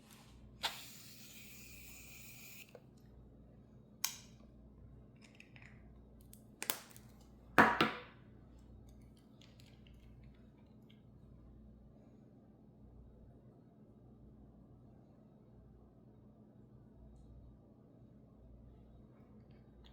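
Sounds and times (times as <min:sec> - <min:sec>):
sharp clicks and snaps: 0:04.0 - 0:04.4.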